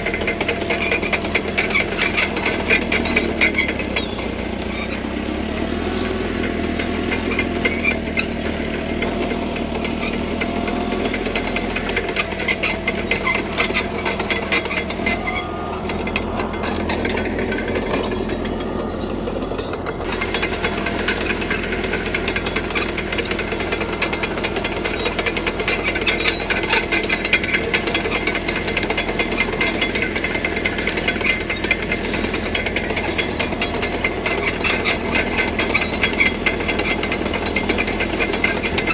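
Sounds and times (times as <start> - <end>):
diesel engine running under load: 0.0 - 38.9
steel tracks clanking and squeaking: 0.0 - 38.9.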